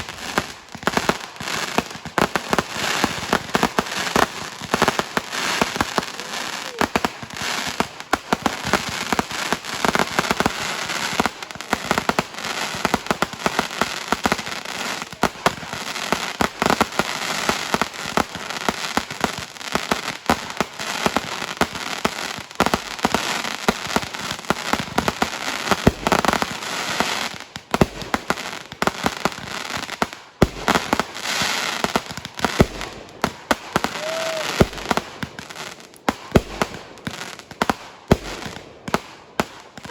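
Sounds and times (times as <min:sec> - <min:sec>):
fireworks crackling and banging: 0:00.0 - 0:39.9.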